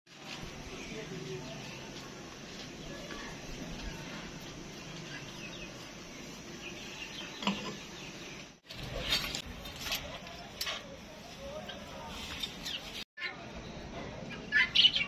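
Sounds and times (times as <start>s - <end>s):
outdoor background noise: 0.1s - 15.0s
small birds chirping faintly: 0.1s - 15.0s.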